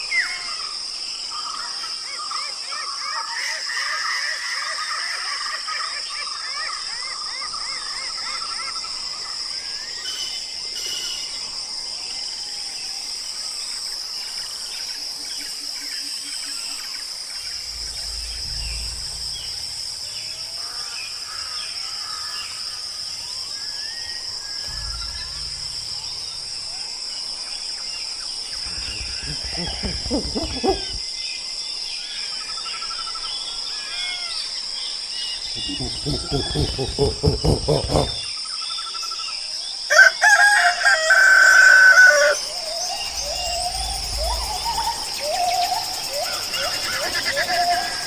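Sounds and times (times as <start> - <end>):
high insect drone: 0.0 - 48.0
deep low hoots: 17.4 - 21.6, 24.6 - 27.3, 28.4 - 31.1, 35.5 - 38.3, 42.3 - 48.0.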